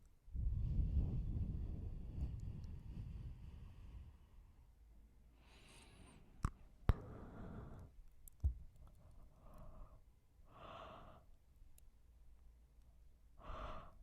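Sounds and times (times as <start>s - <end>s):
person breathing and yawning: 5.4s - 8.0s, 9.1s - 11.3s, 13.4s - 14.0s.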